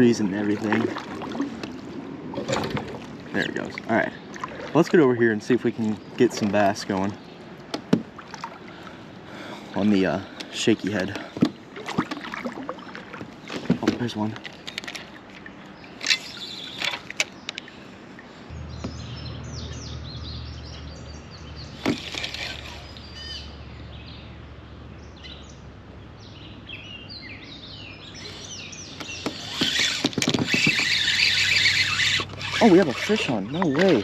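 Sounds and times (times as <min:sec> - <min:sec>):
birds singing: 0:02.4 - 0:34.0
steady low rumble: 0:18.5 - 0:21.8.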